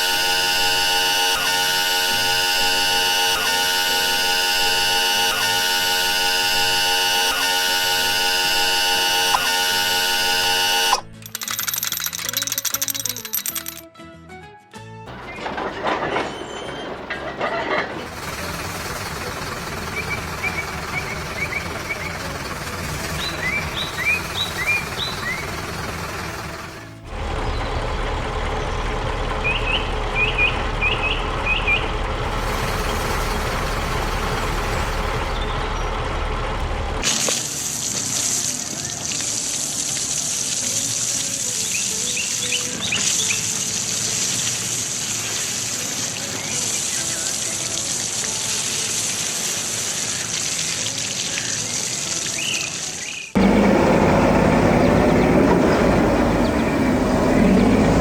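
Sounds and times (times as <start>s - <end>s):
vehicle engine: 0.0s - 13.7s, 15.1s - 58.0s
low machine rumble: 18.0s - 37.0s, 53.4s - 58.0s
bird chirps: 19.9s - 22.2s, 23.1s - 25.6s, 28.6s - 32.0s.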